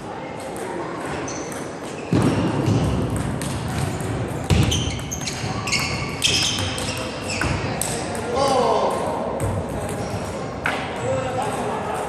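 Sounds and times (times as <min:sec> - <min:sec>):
table tennis ball hits: 0:01.4 - 0:11.0.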